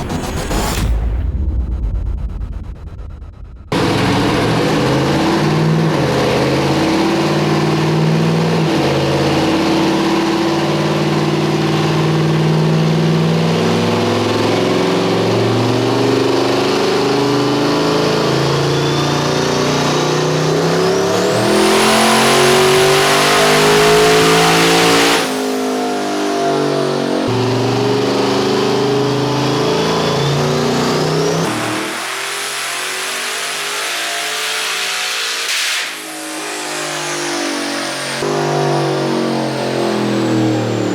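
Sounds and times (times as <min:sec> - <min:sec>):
truck engine revving: 0:02.9 - 0:35.4.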